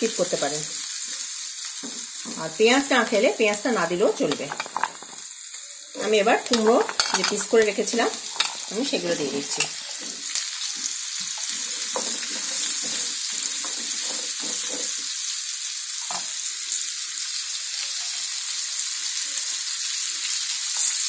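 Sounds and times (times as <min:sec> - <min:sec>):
vegetables sizzling in hot oil: 0:00.0 - 0:21.0
spatula scraping and knocking pan: 0:04.2 - 0:05.2, 0:06.0 - 0:15.1.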